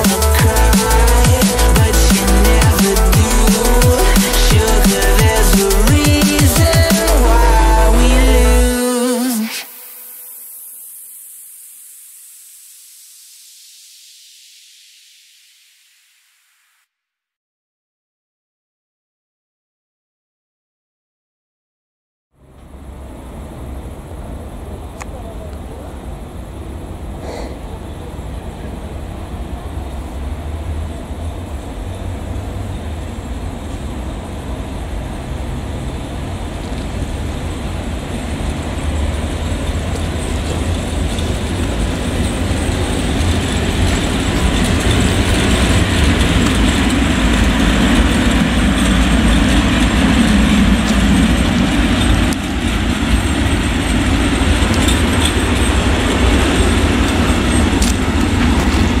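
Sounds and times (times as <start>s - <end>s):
train passing with deep rumble: 22.4s - 59.0s.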